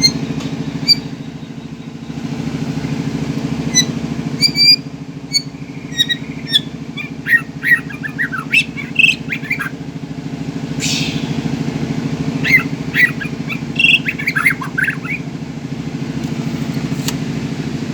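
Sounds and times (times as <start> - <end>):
bird chirps squawks and whistles: 0.0 - 0.2, 0.8 - 1.6, 3.7 - 9.8, 10.8 - 11.5, 12.4 - 15.2
low engine-like drone: 0.0 - 17.9.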